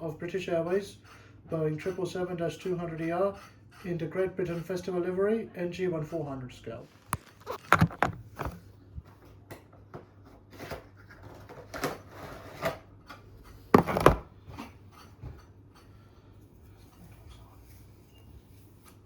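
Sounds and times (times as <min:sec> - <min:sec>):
cardboard box being handled: 0:06.9 - 0:08.7.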